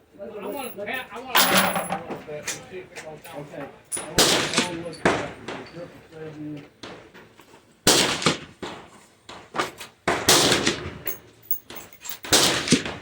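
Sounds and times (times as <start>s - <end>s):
loud rifle shots echoing: 4.1s - 4.7s.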